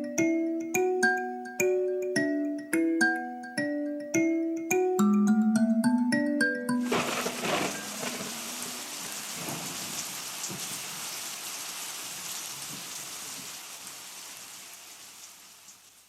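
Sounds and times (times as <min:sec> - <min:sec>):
rain falling: 0:06.8 - 0:16.0.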